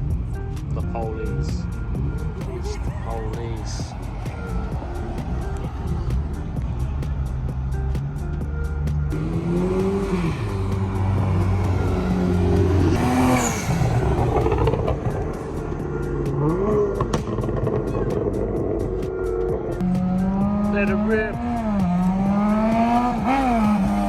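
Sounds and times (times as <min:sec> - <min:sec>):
music with steady beat: 0:00.0 - 0:24.0
car engine revving hard: 0:09.1 - 0:24.0.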